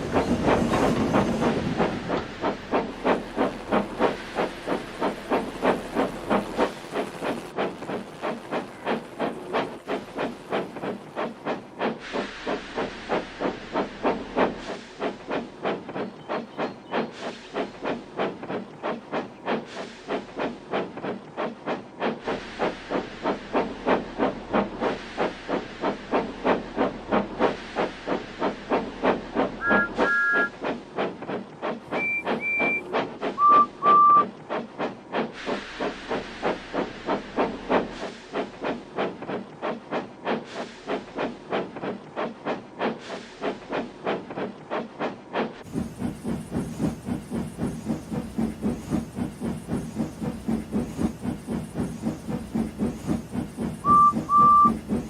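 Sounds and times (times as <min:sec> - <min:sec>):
steam locomotive chuffing: 0:00.0 - 0:55.0
train whistle toots: 0:29.6 - 0:30.6, 0:31.9 - 0:34.3, 0:53.8 - 0:54.9.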